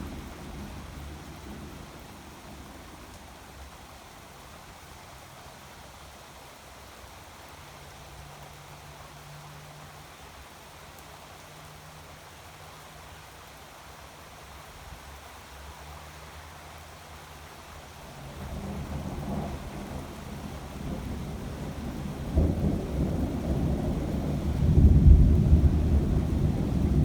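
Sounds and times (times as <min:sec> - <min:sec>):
thunder rumbling: 0:18.3 - 0:27.0.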